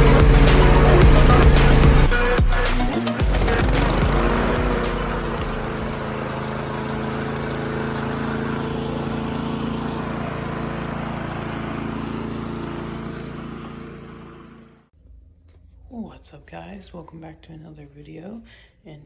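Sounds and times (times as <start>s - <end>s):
vacuum cleaner running: 0.0s - 14.9s.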